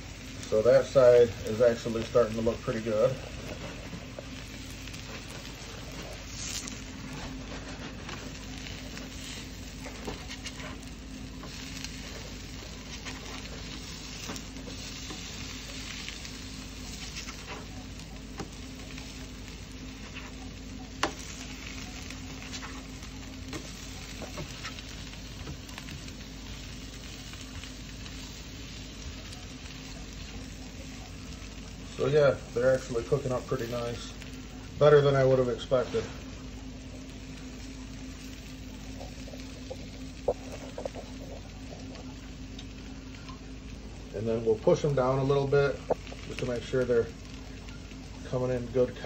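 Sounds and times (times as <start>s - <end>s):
banana peel sizzling on griddle: 0.0s - 49.0s.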